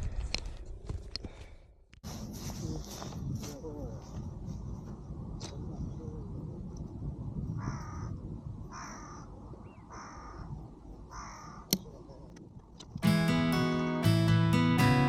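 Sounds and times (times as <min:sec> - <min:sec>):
crow cawing: 0:07.6 - 0:10.5, 0:11.1 - 0:11.7.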